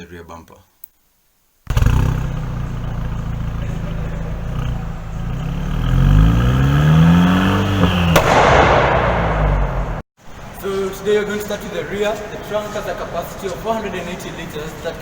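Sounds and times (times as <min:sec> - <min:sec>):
car engine revving: 0:01.7 - 0:10.0
sharp exhaust crack: 0:01.7 - 0:10.4.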